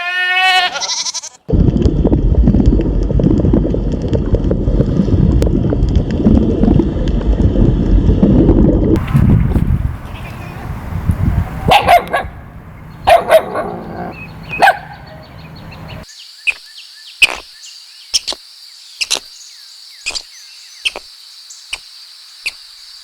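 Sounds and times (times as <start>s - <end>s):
dog barking: 11.5s - 12.4s, 13.0s - 15.3s.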